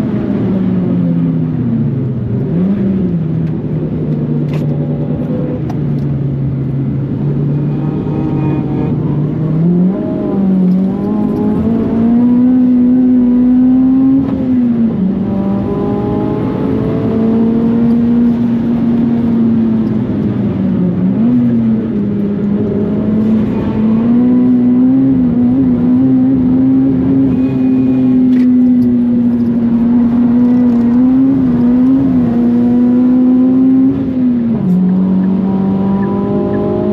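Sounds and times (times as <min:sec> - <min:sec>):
car engine revving high: 0:07.0 - 0:20.1, 0:20.9 - 0:36.9.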